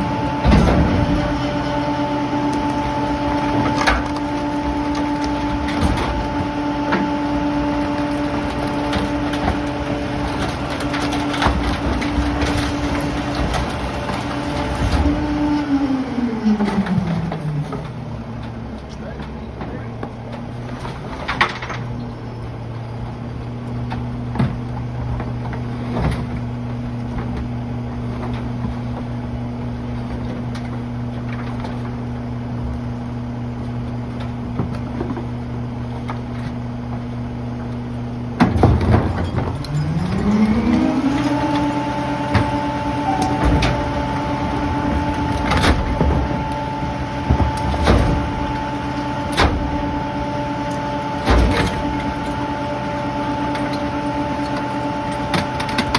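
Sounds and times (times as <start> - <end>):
knocks and clunks: 0.0 - 15.7, 33.6 - 55.9
diesel truck engine idling: 0.0 - 25.6, 26.5 - 55.9.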